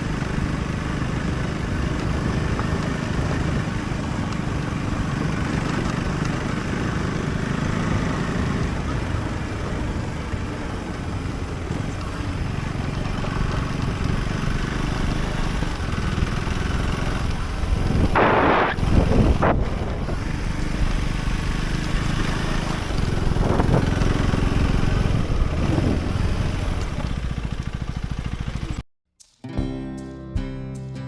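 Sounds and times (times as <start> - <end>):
motorcycle engine running: 0.0 - 28.8
wind and road noise: 0.0 - 28.8
brief rush of noise: 18.1 - 19.7.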